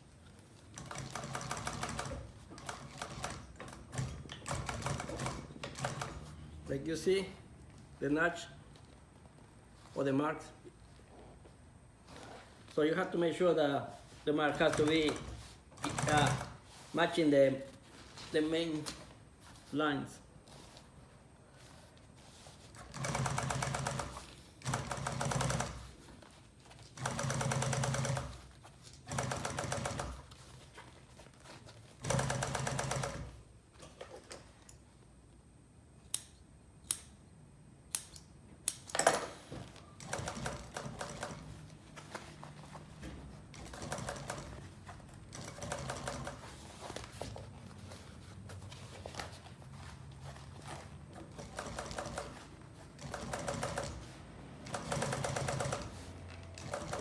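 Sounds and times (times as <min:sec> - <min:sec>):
sewing machine stitching: 0:14.5 - 0:16.7, 0:22.8 - 0:25.9, 0:27.0 - 0:30.4, 0:32.0 - 0:33.4, 0:40.0 - 0:41.6, 0:51.2 - 0:57.0.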